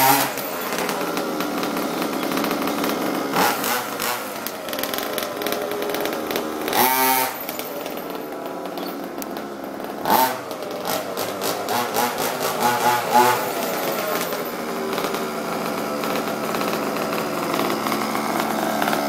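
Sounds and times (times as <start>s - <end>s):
two-stroke engine throttle blips: 0.0s - 19.0s.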